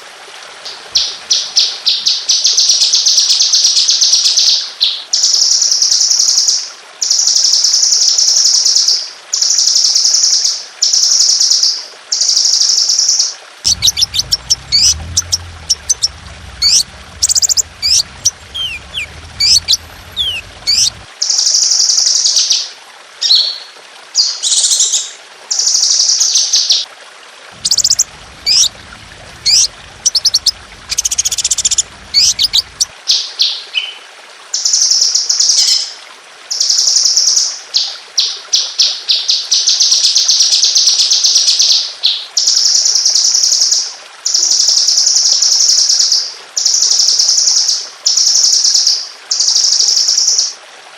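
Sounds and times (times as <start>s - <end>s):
songbird high-pitched trills: 13.7s - 21.0s, 27.6s - 28.7s, 29.4s - 32.9s.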